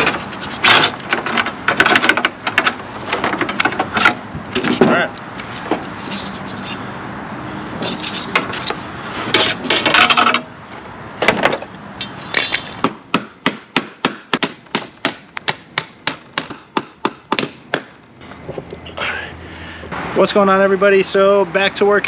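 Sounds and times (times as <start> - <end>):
metal scraping: 0.0 - 6.9, 7.7 - 10.5.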